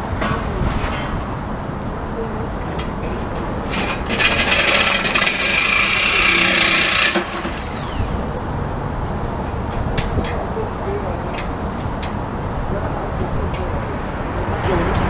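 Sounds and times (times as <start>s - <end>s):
power saw cutting pipe: 3.6s - 8.8s
tool winding down whine: 3.6s - 8.8s.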